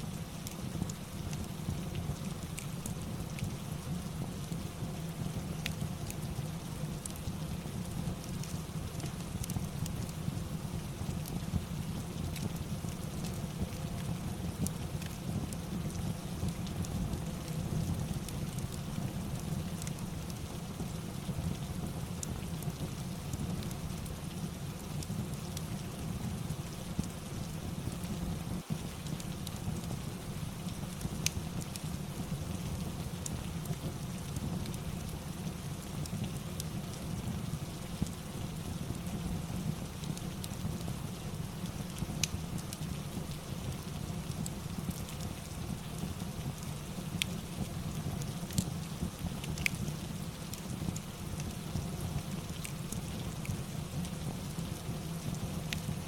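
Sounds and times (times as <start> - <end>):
crackling fireplace: 0.0 - 56.0
steady rain with low rumble: 0.0 - 56.0
fireplace crackling: 39.8 - 56.0.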